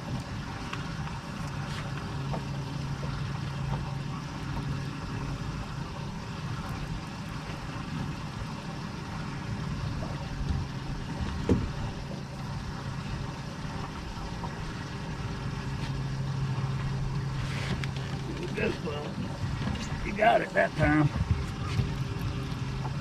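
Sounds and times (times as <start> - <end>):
boat motor humming: 0.0 - 23.0.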